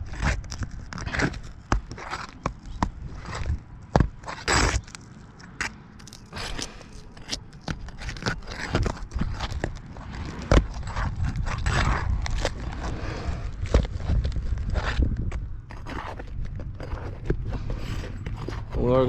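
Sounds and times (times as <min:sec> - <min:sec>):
scrapes and knocks on a roof: 0:00.0 - 0:04.9
low rumble: 0:09.4 - 0:15.7.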